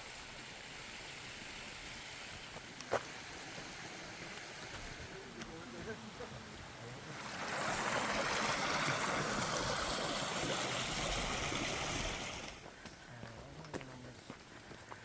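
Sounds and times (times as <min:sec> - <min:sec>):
mountain stream rushing: 0:00.0 - 0:12.7.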